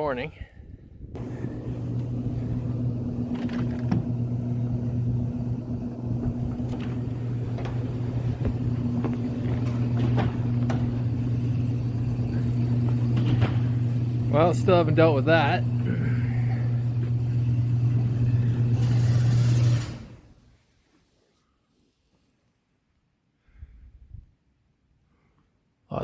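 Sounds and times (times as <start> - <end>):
tractor diesel engine running: 1.2 - 20.0.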